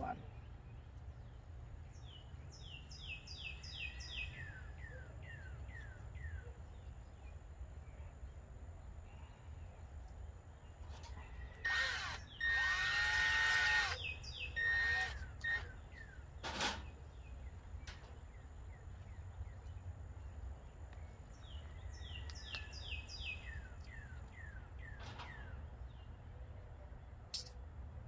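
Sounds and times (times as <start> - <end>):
bird chirping: 0.0 - 26.2
power drill whining: 11.6 - 15.7
sharp click: 27.3 - 27.6.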